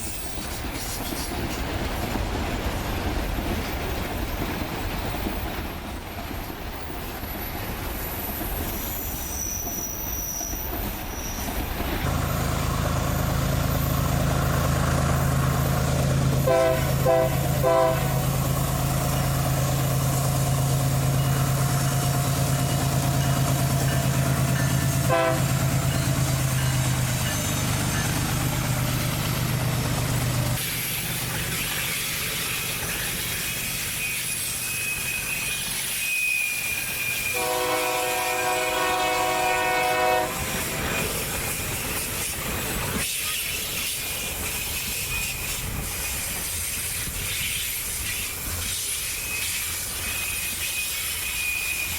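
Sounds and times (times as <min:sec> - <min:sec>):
locomotive engine hum: 0:11.0 - 0:33.9
locomotive horn: 0:16.4 - 0:18.4, 0:24.8 - 0:26.2, 0:37.3 - 0:40.6.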